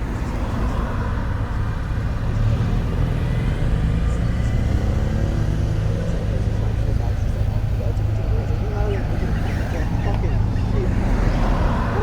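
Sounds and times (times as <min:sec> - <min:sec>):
car engine running: 0:04.1 - 0:12.0.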